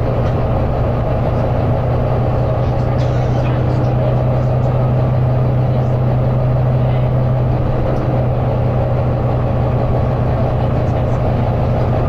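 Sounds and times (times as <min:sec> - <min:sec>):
bus diesel engine droning: 0:00.0 - 0:12.0
road and cabin noise: 0:00.0 - 0:12.0.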